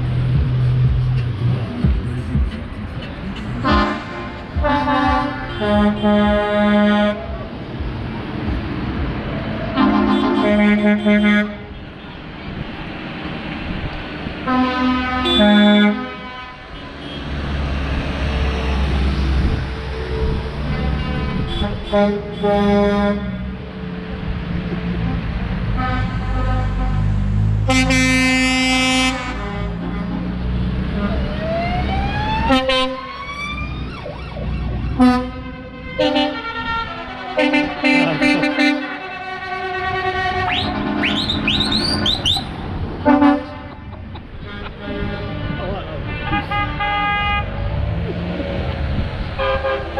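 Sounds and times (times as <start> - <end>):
traffic rumble: 0.0 - 49.9
vehicle horn blasts: 3.7 - 7.2, 9.8 - 11.8, 14.5 - 17.3, 20.7 - 23.4, 35.0 - 42.1, 44.4 - 47.5, 49.4 - 49.9
siren rising in pitch: 31.2 - 35.2.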